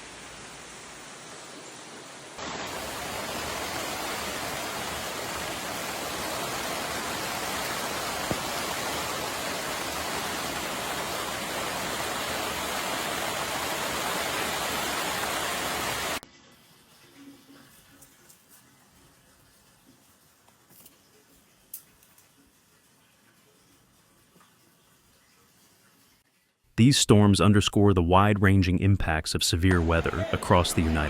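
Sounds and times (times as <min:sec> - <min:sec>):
heavy downpour hiss: 0:00.0 - 0:16.2, 0:29.6 - 0:31.0.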